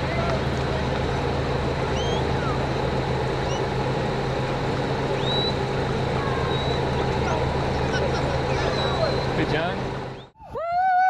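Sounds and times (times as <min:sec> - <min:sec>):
vehicle engine humming: 0:00.0 - 0:10.4
birds chirping: 0:05.0 - 0:10.4.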